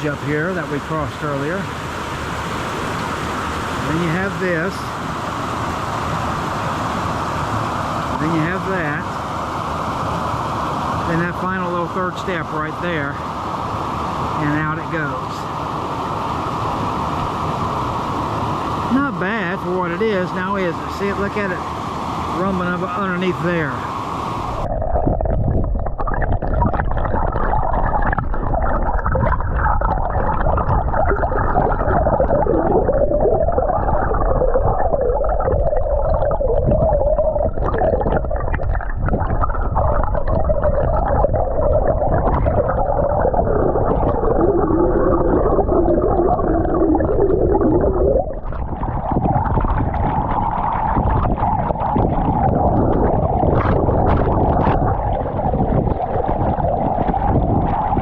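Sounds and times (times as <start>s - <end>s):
muffled underwater water churning: 0.0s - 58.0s
wavering hums: 22.2s - 58.0s.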